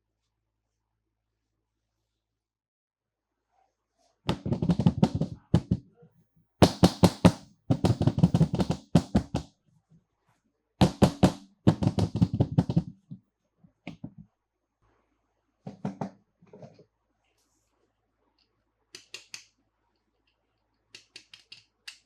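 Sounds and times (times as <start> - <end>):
faint taps: 15.7 - 16.8.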